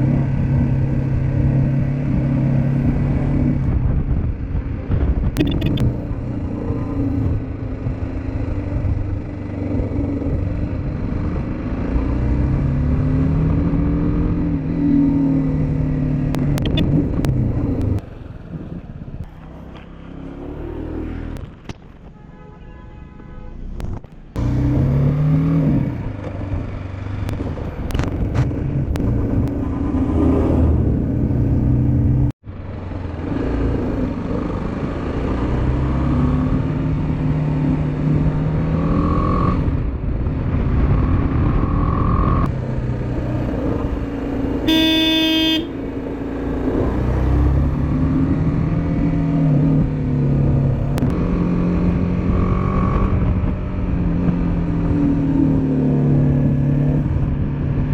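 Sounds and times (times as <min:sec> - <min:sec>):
motorcycle engine accelerating: 0:00.0 - 0:21.7, 0:24.1 - 0:57.9
vehicle horn: 0:22.1 - 0:23.8, 0:44.6 - 0:45.9.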